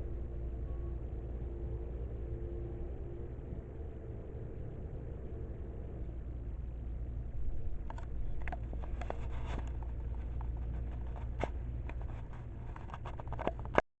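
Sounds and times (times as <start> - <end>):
light clicks and rattles: 7.5 - 13.8.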